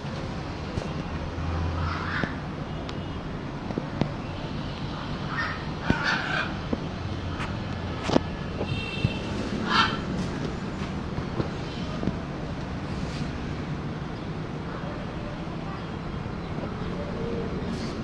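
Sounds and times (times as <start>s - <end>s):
parrot squawking: 9.6s - 10.1s.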